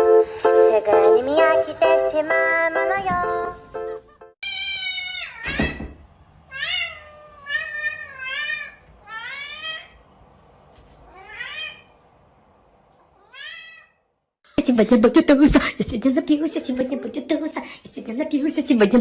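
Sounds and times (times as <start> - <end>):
cat meowing: 4.4 - 5.8, 6.5 - 10.0, 11.0 - 11.9, 13.1 - 14.1.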